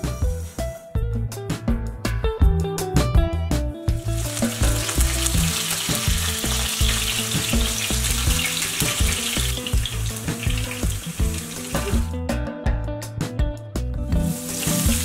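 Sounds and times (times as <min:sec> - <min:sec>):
background music with steady beat: 0:00.0 - 0:15.0
garlic sizzling in hot oil: 0:03.9 - 0:12.1, 0:14.1 - 0:15.0.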